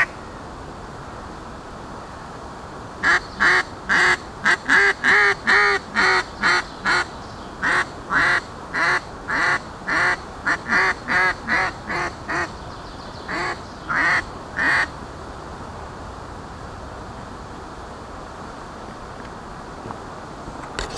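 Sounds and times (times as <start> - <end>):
duck call quacks: 3.0 - 12.5, 13.3 - 14.9.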